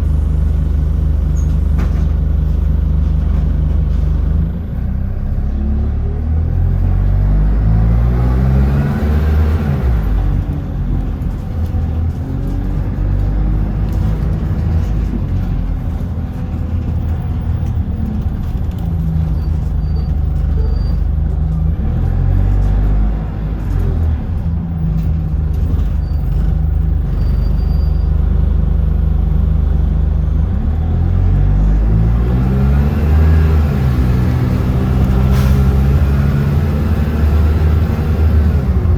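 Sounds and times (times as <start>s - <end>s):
bus engine accelerating: 0.0s - 38.9s.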